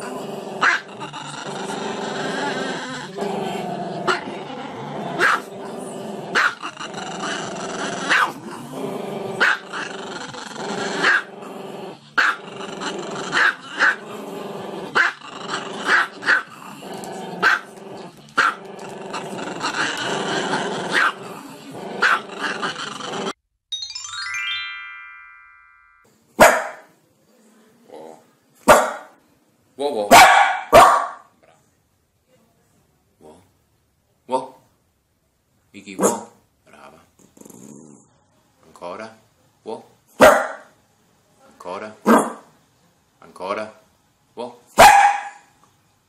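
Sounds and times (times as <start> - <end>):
dog growling: 0.0 - 23.4, 36.7 - 38.2
small dog barking sharply: 26.4 - 26.9, 28.7 - 29.1, 30.1 - 31.3, 40.2 - 40.7, 44.8 - 45.5.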